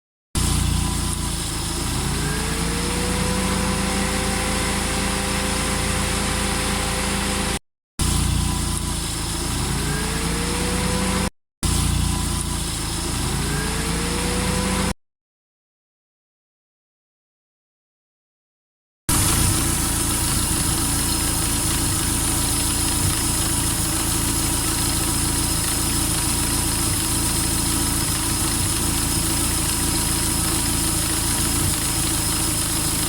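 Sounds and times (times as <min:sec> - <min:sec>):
radiator cooling fan spinning up: 0:00.4 - 0:14.9, 0:19.1 - 0:33.0
car engine idling: 0:19.1 - 0:33.0.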